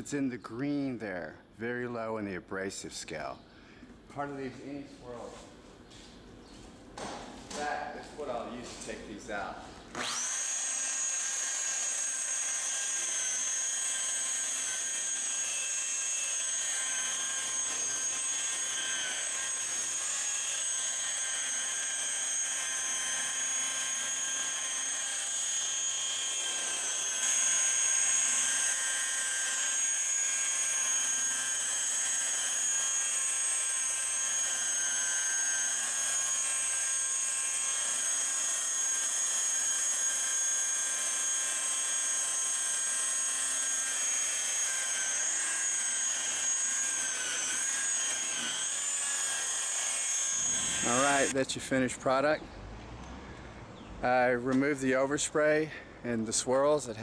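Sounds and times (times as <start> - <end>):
polishing buffer whining: 9.9 - 51.4.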